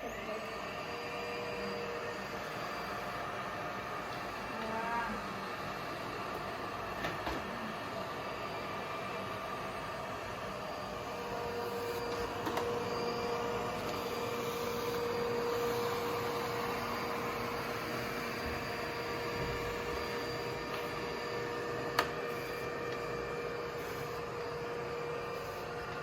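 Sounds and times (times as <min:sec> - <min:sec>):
robot floor cleaner whirring: 0:00.0 - 0:26.0.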